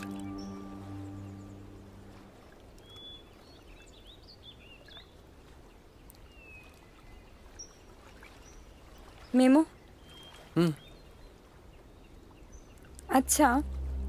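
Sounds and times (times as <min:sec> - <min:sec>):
held music note: 0:00.0 - 0:02.8, 0:13.0 - 0:14.0
birds chirping: 0:00.0 - 0:05.1.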